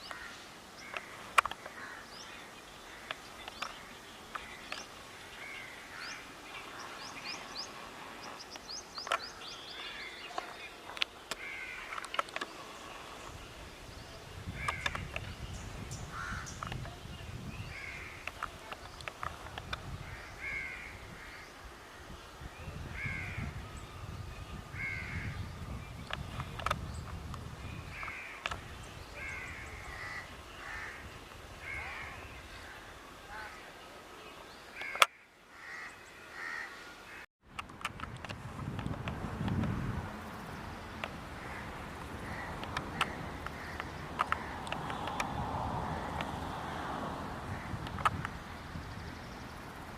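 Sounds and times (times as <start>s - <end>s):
crows cawing: 0.0s - 3.2s, 11.4s - 12.0s, 14.6s - 14.9s, 16.1s - 16.6s, 20.1s - 21.5s, 29.2s - 32.2s, 34.8s - 37.2s, 41.4s - 44.7s
birds giving harsh calls: 0.0s - 21.6s, 27.7s - 33.7s, 34.5s - 37.3s, 40.4s - 46.5s
sharp clicks: 42.0s - 45.4s.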